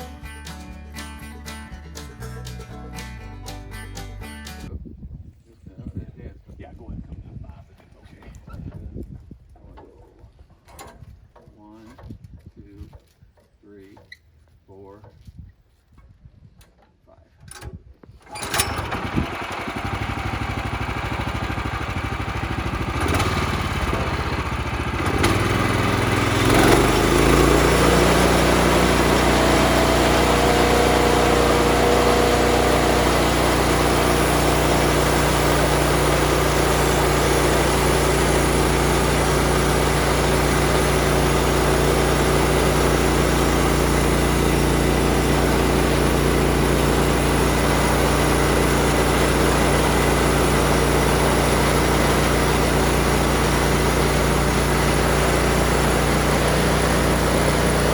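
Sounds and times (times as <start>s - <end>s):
small gasoline engine running: 0.0s - 4.7s, 18.2s - 57.9s.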